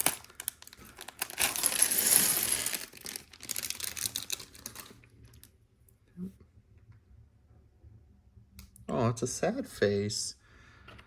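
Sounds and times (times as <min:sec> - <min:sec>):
plastic pieces clattering: 0:00.0 - 0:05.5.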